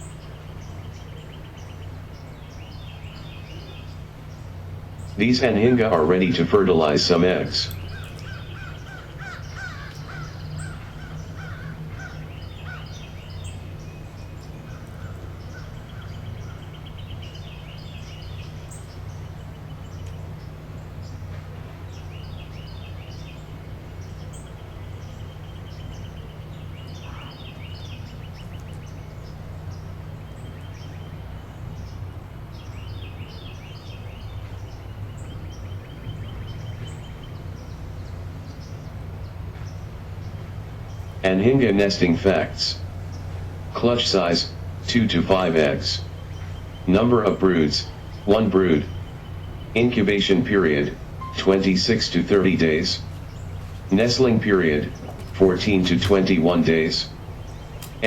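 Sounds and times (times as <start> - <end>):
bird chirps: 0.0 - 58.0
steady low hum: 0.0 - 58.0
trilling bird calls: 0.0 - 58.0
harsh crow-like calls: 7.3 - 13.8, 14.4 - 19.7, 21.6 - 30.2.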